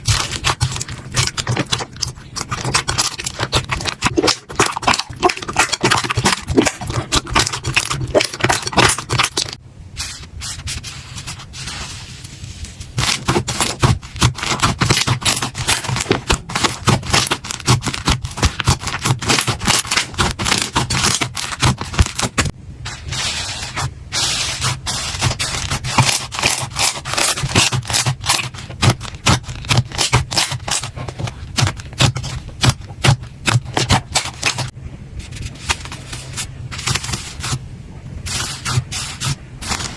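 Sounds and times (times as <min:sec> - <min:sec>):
slime crackling and popping: 0:00.0 - 0:09.6, 0:13.0 - 0:22.5, 0:24.6 - 0:34.7.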